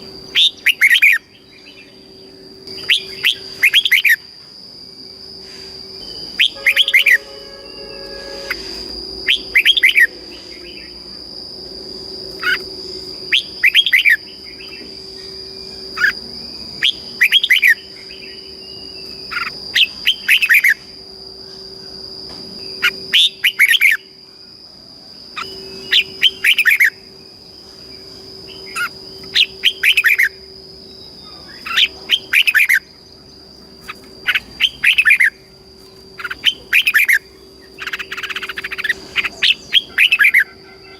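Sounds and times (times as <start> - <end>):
steady high-pitched tone: 0.0 - 40.9.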